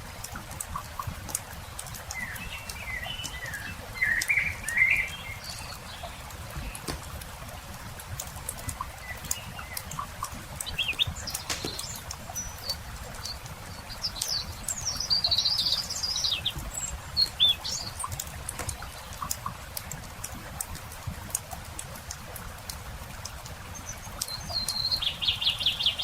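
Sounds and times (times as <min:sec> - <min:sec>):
songbirds chirping: 0:00.0 - 0:26.0
campfire crackling: 0:04.2 - 0:14.8.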